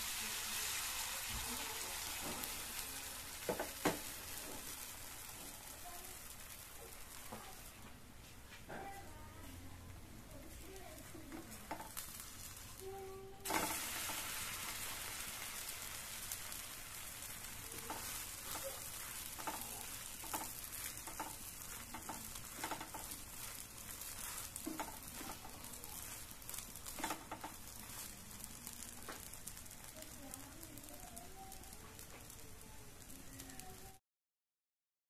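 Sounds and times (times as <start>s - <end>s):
wrapper sizzling in oil: 0.0s - 34.0s
spatula tapping on pan: 3.4s - 4.7s, 11.3s - 12.0s, 17.8s - 28.4s.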